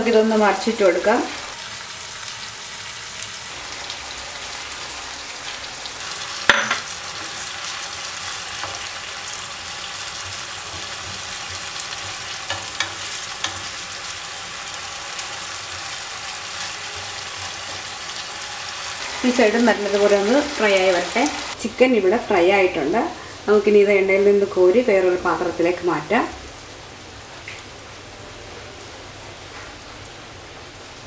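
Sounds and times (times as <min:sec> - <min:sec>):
chicken sizzling in oil: 0:01.4 - 0:21.6
spatula knocking against pan: 0:06.5 - 0:07.0.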